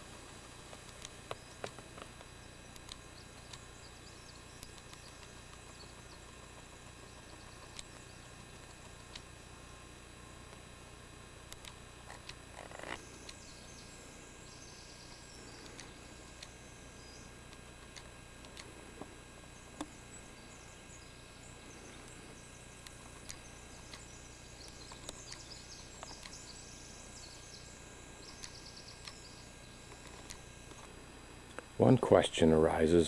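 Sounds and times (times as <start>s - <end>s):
steady low background hiss: 0.0s - 33.0s
small birds chirping: 0.2s - 10.8s, 11.4s - 32.0s
light clicks: 11.5s - 13.4s, 28.3s - 29.2s.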